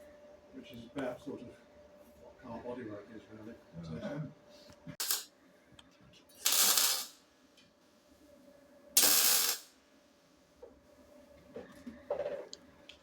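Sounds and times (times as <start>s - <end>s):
welding arc bursts: 5.0s - 5.3s, 6.4s - 7.2s, 9.0s - 9.7s.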